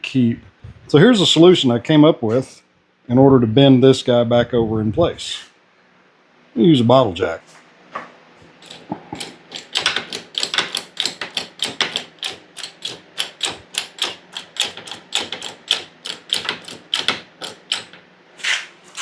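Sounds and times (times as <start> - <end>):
bottle jack pumping clicks: 8.6 - 18.0.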